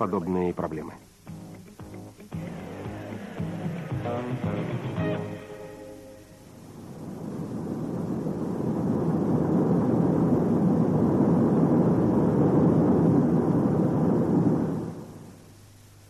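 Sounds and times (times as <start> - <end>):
steady rushing noise: 0.0 - 15.6.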